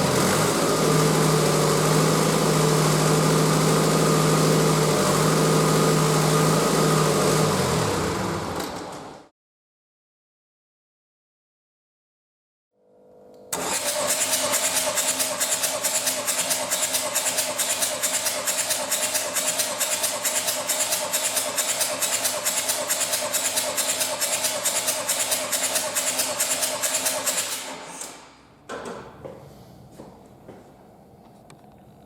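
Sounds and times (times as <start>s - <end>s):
engine winding down: 0.0s - 9.3s, 13.5s - 28.2s.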